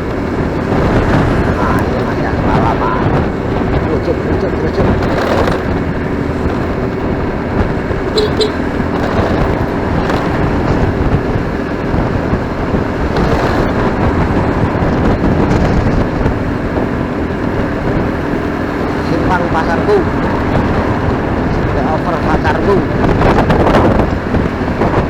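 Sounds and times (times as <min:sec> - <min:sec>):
motorcycle engine riding: 0:00.0 - 0:25.0
two short tones: 0:08.2 - 0:08.6.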